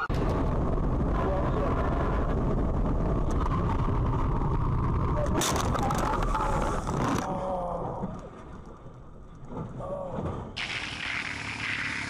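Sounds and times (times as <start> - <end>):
vehicle road rumble: 0.0 - 12.0
loud noisy burst: 10.6 - 12.0.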